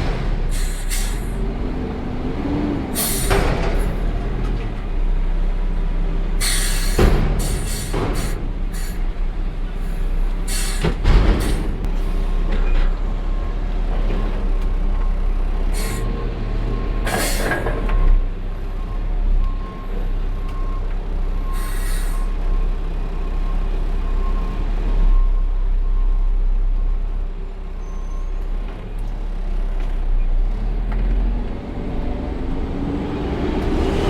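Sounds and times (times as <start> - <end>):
diesel engine rumbling: 0.0 - 34.0
air brake hisses: 0.5 - 1.4, 3.0 - 3.4, 6.4 - 9.1, 9.8 - 12.2, 15.7 - 16.2, 17.1 - 17.6, 21.5 - 22.3.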